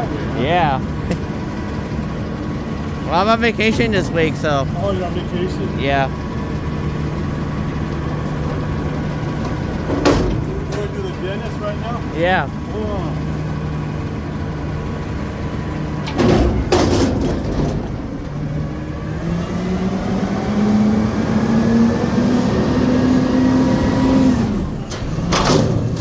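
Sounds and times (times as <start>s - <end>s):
garbage truck engine idling: 0.0s - 22.3s, 23.1s - 26.0s
loud metal clanks: 9.4s - 11.8s, 16.0s - 18.5s, 24.9s - 26.0s.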